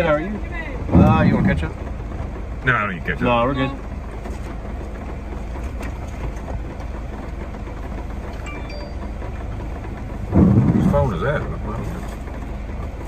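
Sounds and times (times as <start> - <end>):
car engine idling: 0.0 - 13.0
phone notification tone: 8.5 - 9.4.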